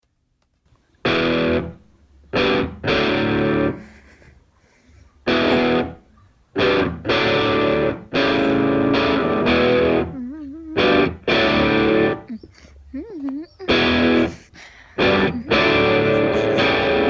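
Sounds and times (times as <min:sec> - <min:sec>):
distorted electric guitar chords: 0:01.0 - 0:03.9, 0:05.3 - 0:10.2, 0:10.8 - 0:12.3, 0:13.7 - 0:14.4, 0:15.0 - 0:17.0.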